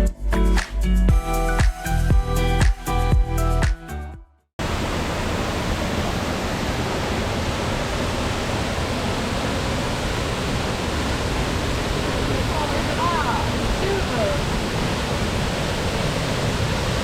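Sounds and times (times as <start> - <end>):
background music: 0.0 - 4.4
waterfall roaring: 4.6 - 17.0.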